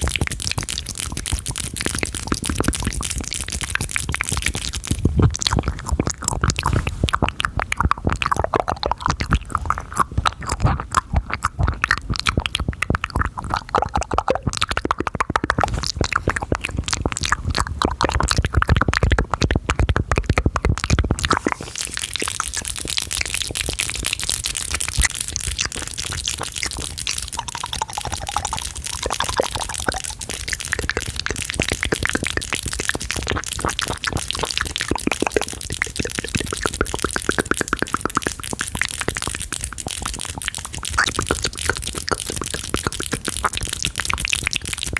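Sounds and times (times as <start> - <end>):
wet mouth clicks and smacks: 0.0 - 44.9
steady hissing: 21.1 - 33.2.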